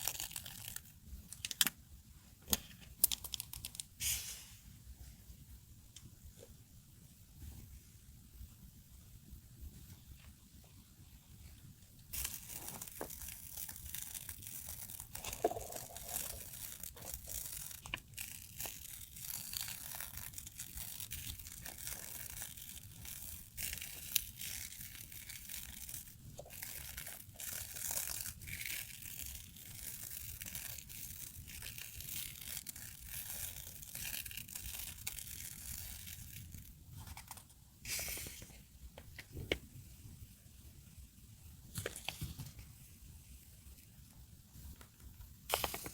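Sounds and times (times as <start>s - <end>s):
paper crinkling and rustling: 12.1s - 38.6s, 41.7s - 42.6s, 45.5s - 45.9s.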